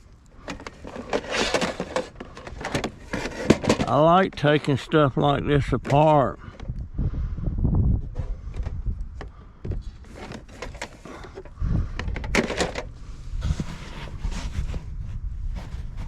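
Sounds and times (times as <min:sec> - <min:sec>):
rustling: 0:00.4 - 0:03.8, 0:12.4 - 0:16.0
objects knocking and clicking: 0:00.4 - 0:04.0.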